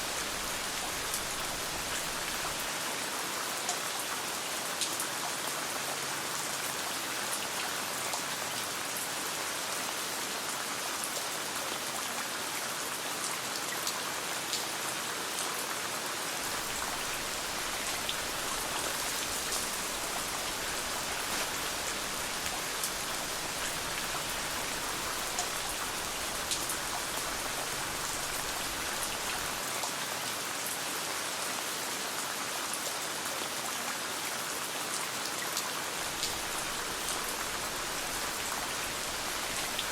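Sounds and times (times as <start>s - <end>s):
steady rain hiss: 0.0s - 39.9s
raindrop ticks: 16.5s - 29.5s.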